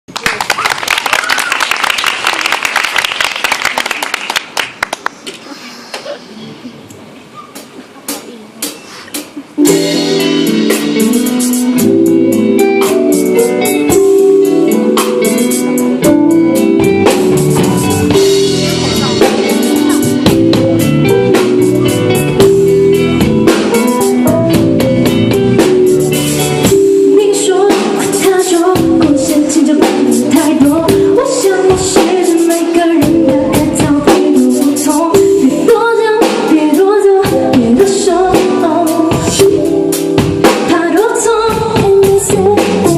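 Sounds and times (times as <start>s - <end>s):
drum kit: 7.0s - 42.9s
electric guitar: 9.3s - 42.9s
woman singing: 26.9s - 42.9s.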